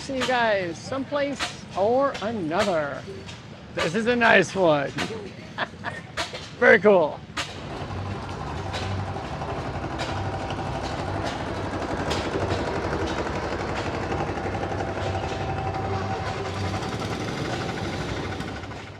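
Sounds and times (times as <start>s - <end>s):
antique engine clattering: 6.2s - 18.9s.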